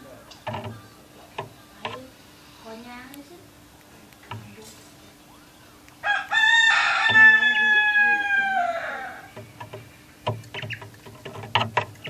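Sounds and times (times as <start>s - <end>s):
rooster crowing: 6.0s - 9.4s.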